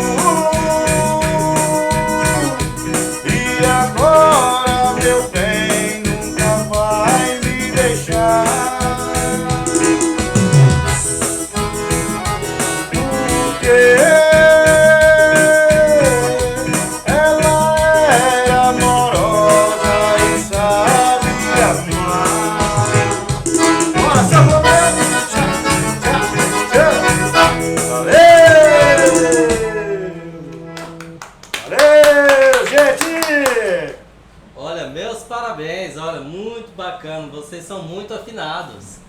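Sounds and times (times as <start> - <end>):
person singing: 0.0 - 10.8, 12.6 - 31.2
rattling percussion: 0.0 - 29.6
piano accordion playing: 0.0 - 31.2.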